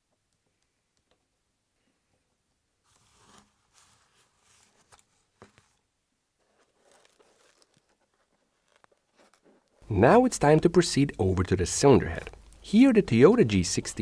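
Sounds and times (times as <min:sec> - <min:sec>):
faint rustling and scraping: 0:02.8 - 0:09.8.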